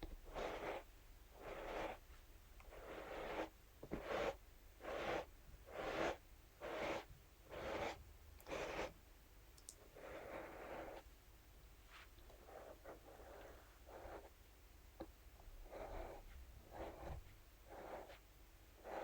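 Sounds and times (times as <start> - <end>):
brush sweeping across a surface: 0.3 - 8.9, 11.8 - 14.3, 15.8 - 19.0.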